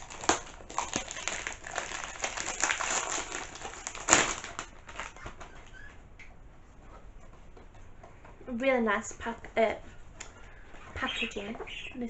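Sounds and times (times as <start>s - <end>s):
packaging rustling and crinkling: 0.0s - 5.8s.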